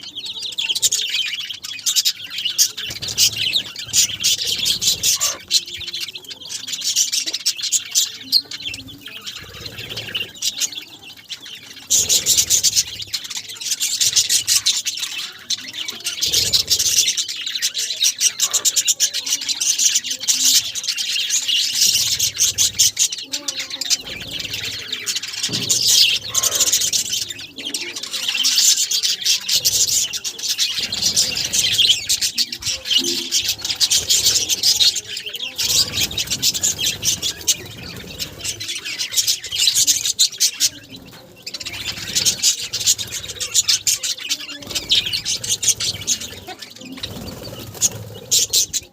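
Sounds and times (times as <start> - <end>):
budgerigars chattering: 0.0 - 48.9.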